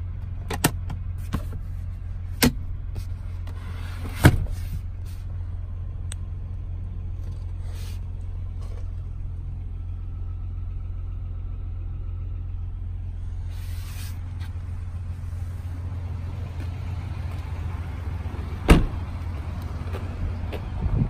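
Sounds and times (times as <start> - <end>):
car engine idling: 0.0 - 21.0
car door shutting: 3.6 - 4.8, 18.6 - 19.1.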